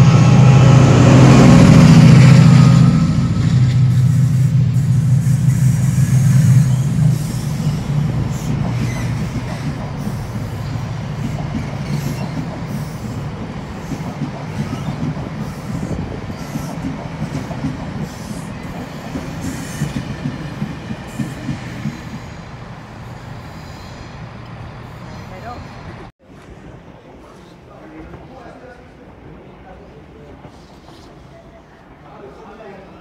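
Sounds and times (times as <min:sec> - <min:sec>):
diesel train drone: 0:00.0 - 0:26.1
train wheels on rails: 0:00.0 - 0:28.8.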